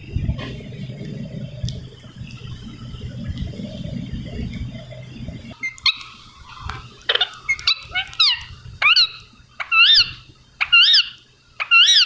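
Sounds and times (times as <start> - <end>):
parrot squawking calls: 7.1 - 12.0.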